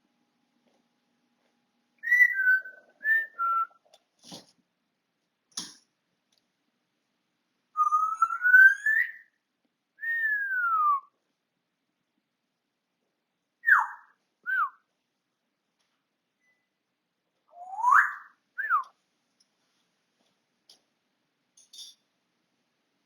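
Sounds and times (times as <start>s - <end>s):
parrot whistling: 7.8s - 9.2s, 17.6s - 18.8s.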